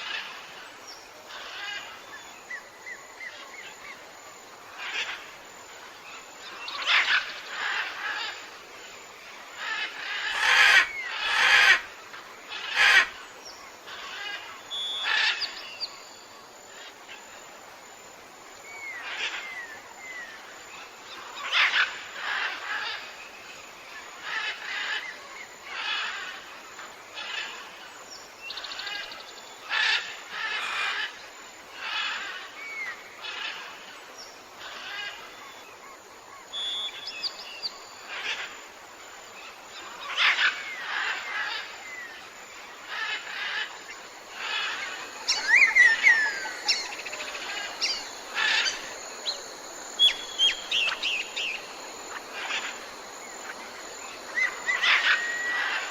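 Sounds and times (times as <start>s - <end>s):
forest background: 0.0s - 55.9s
birds calling: 39.4s - 55.9s.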